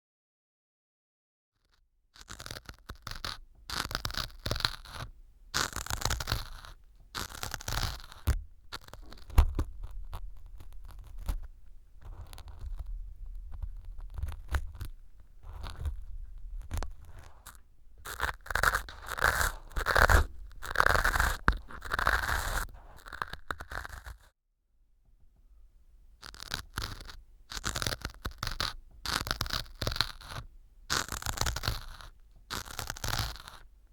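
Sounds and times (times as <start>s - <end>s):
ear pick scraping foam: 2.2s - 24.3s, 26.2s - 33.7s
low thumps: 8.2s - 21.9s.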